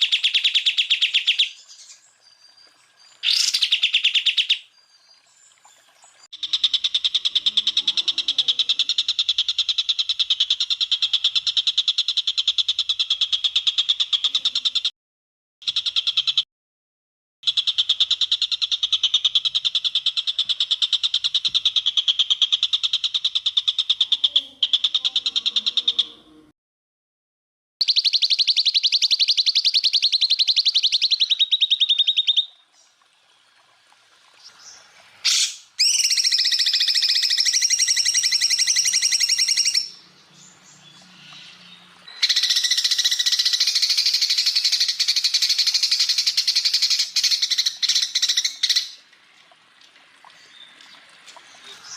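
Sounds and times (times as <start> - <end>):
bird singing rapid trills: 0.0 - 14.9, 27.8 - 33.0, 34.4 - 49.0.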